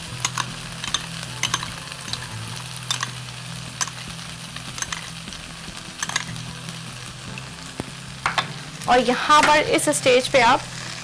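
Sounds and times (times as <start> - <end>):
food sizzling in a wok: 0.0 - 11.0
spoon clinking against a bowl: 0.2 - 2.2.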